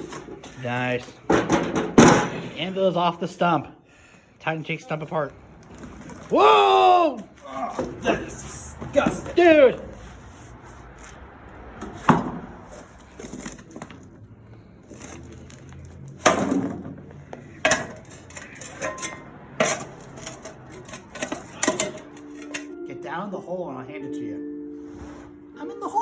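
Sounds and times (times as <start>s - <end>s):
wood and metal knocks: 1.3s - 2.4s.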